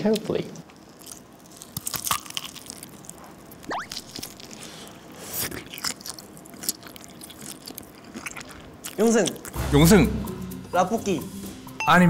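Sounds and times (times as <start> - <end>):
wet chewing: 0.6 - 9.6.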